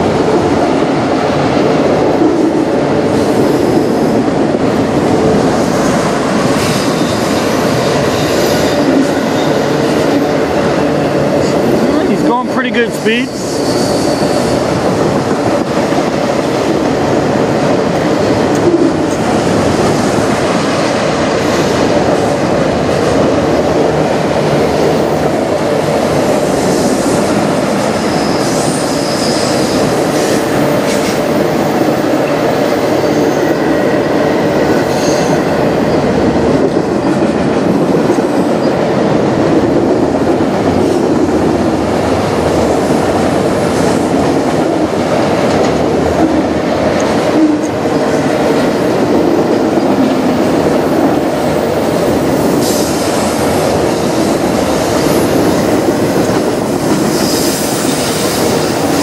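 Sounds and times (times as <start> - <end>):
freight cars rolling on rails: 0.0 - 59.0
high wheel squeals: 13.3 - 14.7.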